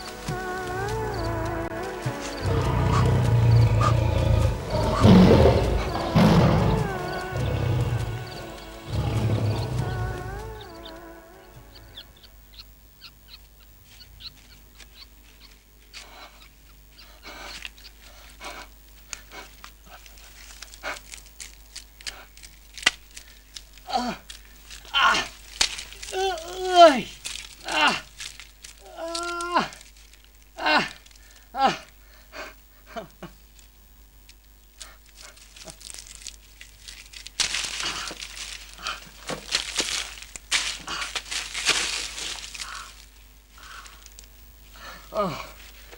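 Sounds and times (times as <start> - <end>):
heavy panting breaths: 0.0 - 11.8, 16.0 - 21.2, 30.8 - 33.1
dry leaves and soil crunching: 0.0 - 12.6, 13.3 - 32.0, 33.2 - 45.9
small ticks: 0.0 - 32.0, 33.2 - 44.4.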